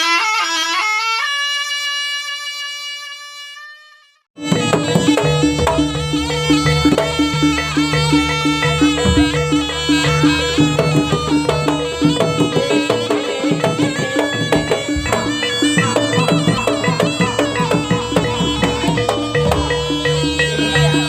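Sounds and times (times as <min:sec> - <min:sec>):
shawm playing a melody: 0:00.0 - 0:21.0
steady held note: 0:04.4 - 0:21.0.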